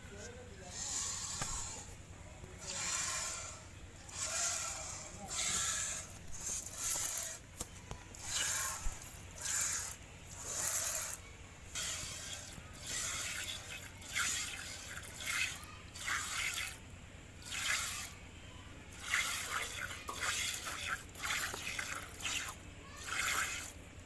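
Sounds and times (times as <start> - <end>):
milk squirting into a pail: 2.5 - 16.8, 17.4 - 18.2, 18.9 - 23.8.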